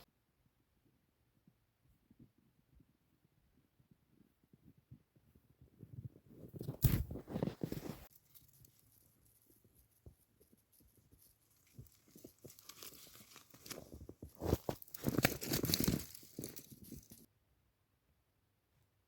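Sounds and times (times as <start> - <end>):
crunching and tearing rustling: 10.7 - 17.3.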